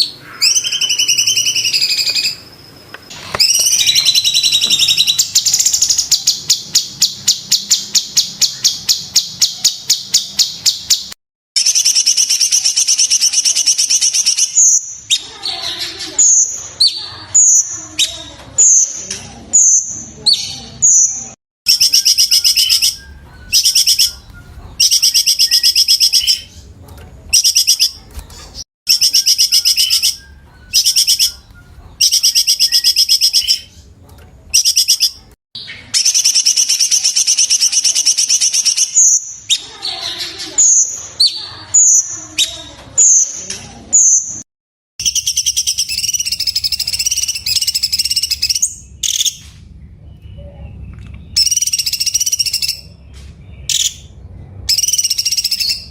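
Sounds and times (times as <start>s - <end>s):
bird whistled notes: 3.1s - 15.3s, 21.7s - 26.5s, 28.9s - 33.7s, 51.4s - 52.9s
bird singing fast high trills: 3.2s - 15.4s, 21.7s - 26.5s, 28.9s - 33.7s.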